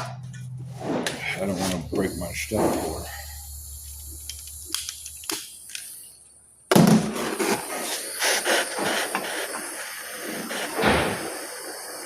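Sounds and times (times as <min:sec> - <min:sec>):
torch flame hissing: 0:01.1 - 0:06.4, 0:07.0 - 0:12.0
gas torch lighting pop: 0:06.7 - 0:12.0.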